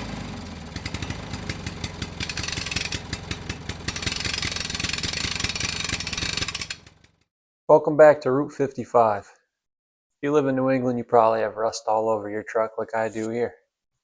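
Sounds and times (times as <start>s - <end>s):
engine idling: 0.0s - 7.2s.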